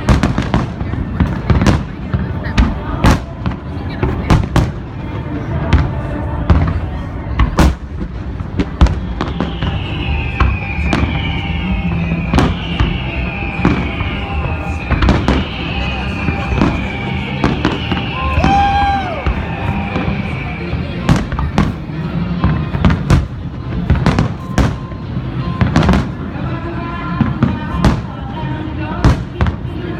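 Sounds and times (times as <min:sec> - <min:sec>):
falling high firework whistles: 0:08.6 - 0:21.7.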